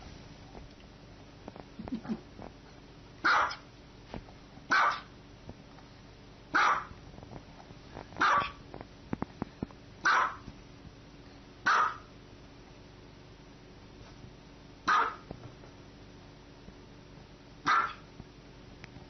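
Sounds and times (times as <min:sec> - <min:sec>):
small dog barking: 0:03.2 - 0:03.6, 0:04.7 - 0:05.1, 0:06.5 - 0:07.0, 0:08.2 - 0:08.6, 0:10.0 - 0:10.5, 0:11.6 - 0:12.1, 0:14.8 - 0:15.3, 0:17.6 - 0:18.1.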